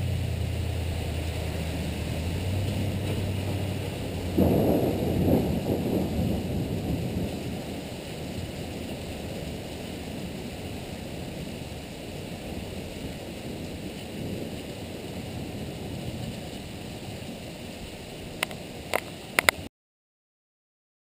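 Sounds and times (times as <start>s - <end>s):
thunder rumble: 0.0s - 19.6s
heavy rain pouring: 0.0s - 19.7s.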